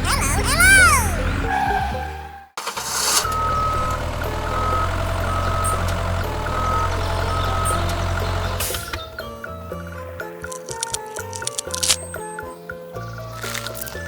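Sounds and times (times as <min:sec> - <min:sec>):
engine running: 0:02.7 - 0:09.4
reversing alarm beeping: 0:03.2 - 0:08.2.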